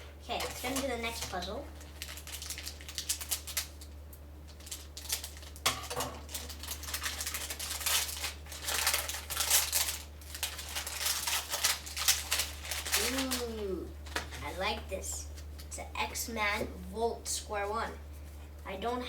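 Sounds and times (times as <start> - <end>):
low electrical hum: 0.0 - 19.0
packaging rustling and crinkling: 0.4 - 14.6.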